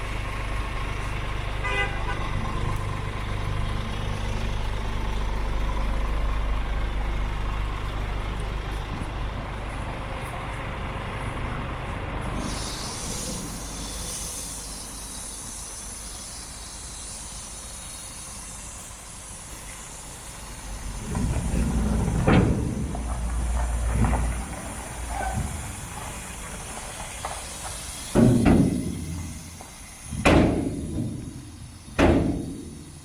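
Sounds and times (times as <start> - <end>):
truck diesel engine idling: 0.0 - 33.0
air hiss: 12.3 - 33.0.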